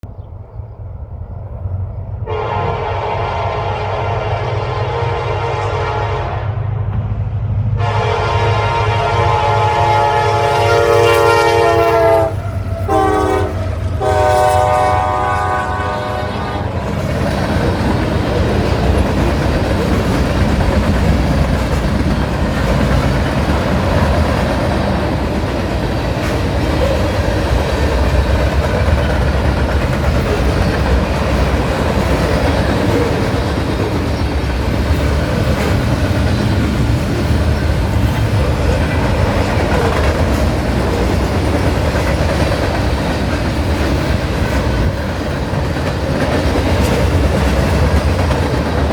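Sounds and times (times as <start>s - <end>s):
train rumbling past: 0.0s - 48.9s
locomotive air horn: 2.2s - 6.8s, 7.8s - 16.8s
wheels clacking over rail joints: 16.4s - 48.9s.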